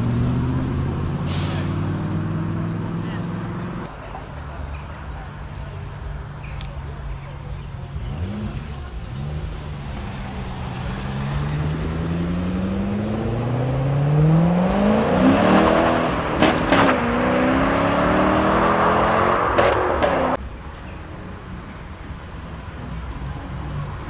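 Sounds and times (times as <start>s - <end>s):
exhaust cracks: 0.0s - 3.9s, 7.9s - 20.4s
car engine accelerating: 0.0s - 4.0s, 5.6s - 20.4s.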